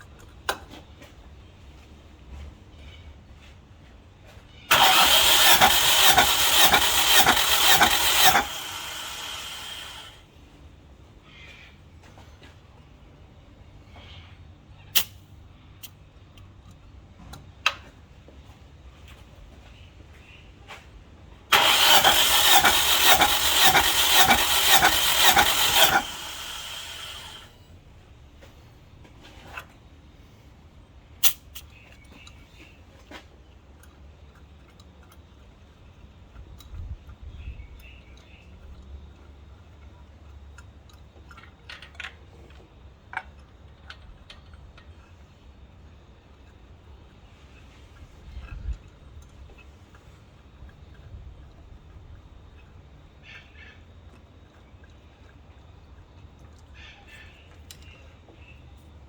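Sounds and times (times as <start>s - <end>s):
sharp clicks: 4.7s - 10.2s, 21.5s - 27.5s
engine cranking by starter motor: 4.7s - 10.3s, 21.5s - 27.6s.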